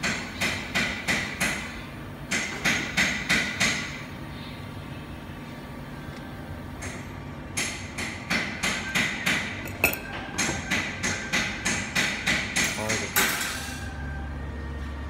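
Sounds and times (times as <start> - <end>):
sharp evenly spaced knocks: 7.6 - 9.6, 10.4 - 13.4.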